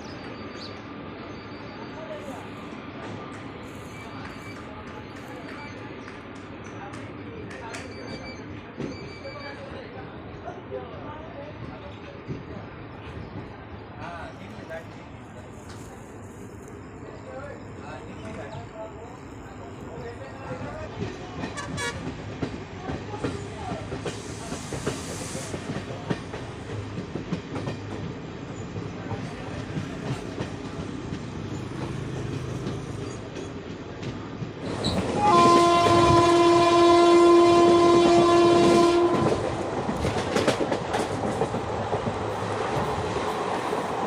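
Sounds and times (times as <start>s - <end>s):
train wheels on rails: 0.1s - 10.2s, 11.4s - 44.0s
locomotive horn blast: 21.5s - 22.1s, 35.1s - 39.5s.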